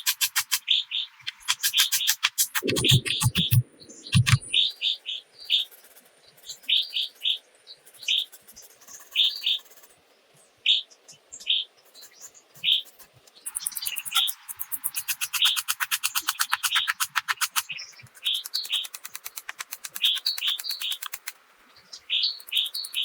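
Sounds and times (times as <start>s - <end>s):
small bird chirping: 0.0s - 9.9s, 10.6s - 23.0s
low thumps and clicks: 2.6s - 4.6s.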